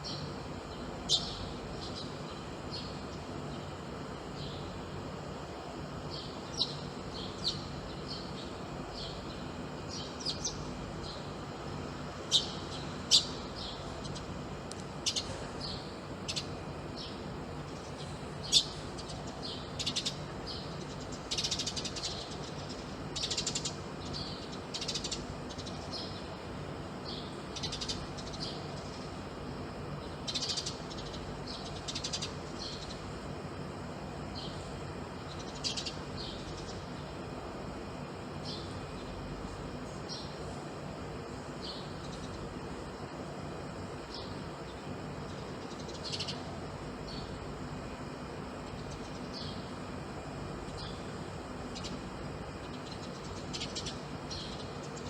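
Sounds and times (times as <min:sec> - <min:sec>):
birds chirping: 0:00.0 - 0:04.8, 0:44.0 - 0:47.6, 0:50.6 - 0:55.0
low background hum: 0:00.0 - 0:55.0.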